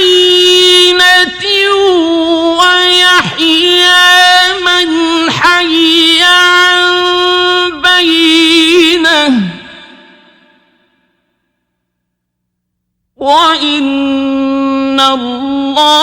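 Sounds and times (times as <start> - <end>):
man chanting melodically: 0.0 - 10.5.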